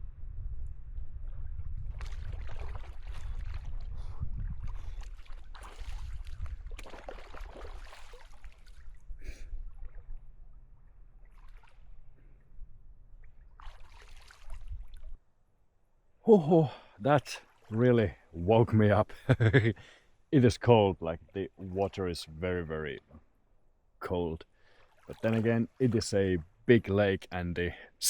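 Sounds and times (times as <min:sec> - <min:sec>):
water splashing: 0:01.9 - 0:09.1, 0:11.2 - 0:12.0, 0:13.2 - 0:15.2, 0:17.1 - 0:18.5, 0:24.6 - 0:26.3.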